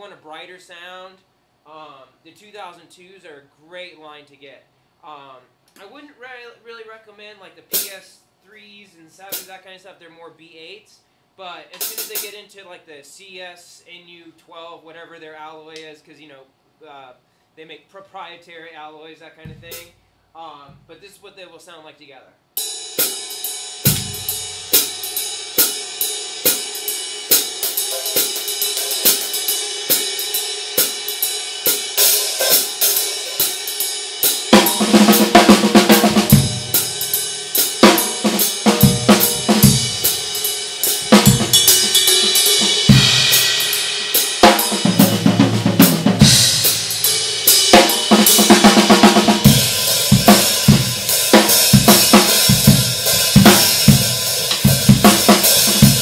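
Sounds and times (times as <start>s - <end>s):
drum kit groove: 7.7s - 8.1s, 9.1s - 9.7s, 11.7s - 12.5s, 19.4s - 20.0s, 20.6s - 21.2s, 22.6s - 56.0s
cymbal pattern: 22.6s - 45.3s, 45.9s - 56.0s.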